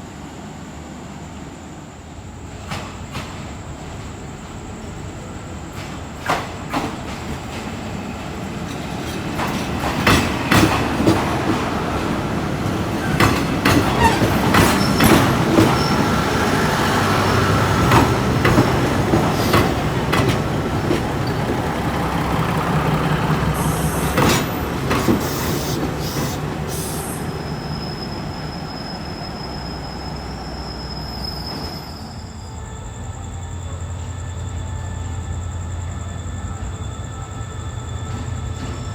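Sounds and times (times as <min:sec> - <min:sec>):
train wheels clacking over rails: 0:02.5 - 0:30.8, 0:37.9 - 0:38.9
high wheel squeal: 0:08.0 - 0:38.9
low engine hum: 0:20.5 - 0:24.9.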